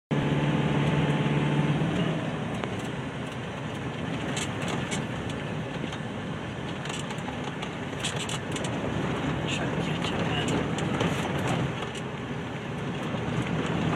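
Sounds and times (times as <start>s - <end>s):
car engine tone: 0.1s - 13.9s
tyres rumbling on dirt road: 0.1s - 13.9s
light clicks and rattles: 2.6s - 6.1s, 6.7s - 12.1s.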